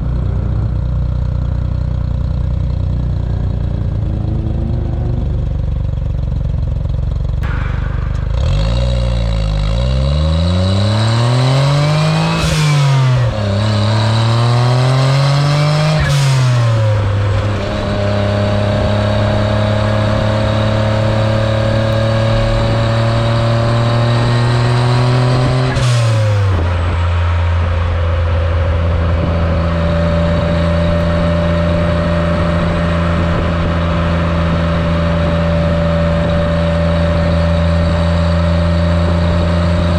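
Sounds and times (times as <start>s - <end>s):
turbocharged car engine accelerating: 0.0s - 39.9s.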